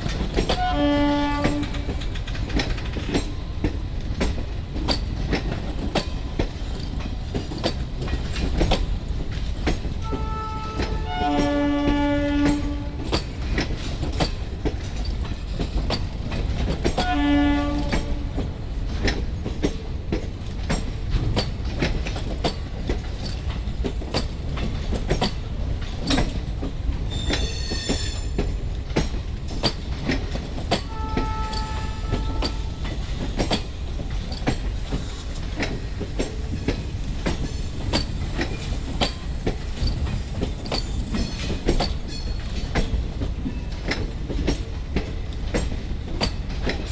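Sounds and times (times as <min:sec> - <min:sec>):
train rumbling on track: 0:00.0 - 0:46.9
wheels clicking over rail joints: 0:00.0 - 0:46.9
train horn blast: 0:00.5 - 0:01.9, 0:10.0 - 0:13.1, 0:17.0 - 0:18.4, 0:30.9 - 0:33.0.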